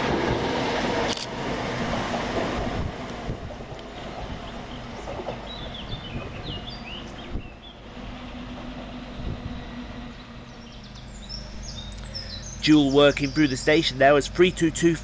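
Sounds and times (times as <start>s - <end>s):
electric train humming: 0.0s - 15.0s
birds chirping: 3.9s - 9.3s, 9.9s - 15.0s.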